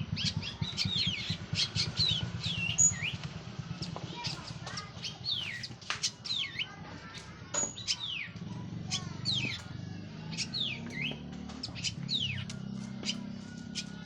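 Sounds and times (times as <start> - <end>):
thrush whistling song: 0.0 - 3.2, 10.3 - 14.0
sharp bird clicking notes: 0.2 - 6.7, 10.3 - 14.0.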